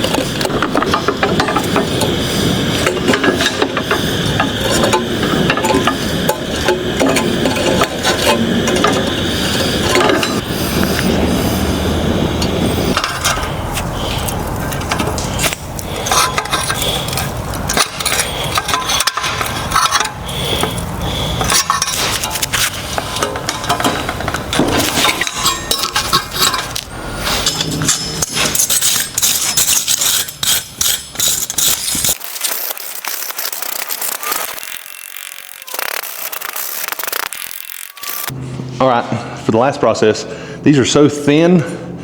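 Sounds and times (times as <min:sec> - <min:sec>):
steady rushing noise: 0:00.0 - 0:27.9
metal tools tapping on steel: 0:23.2 - 0:31.6.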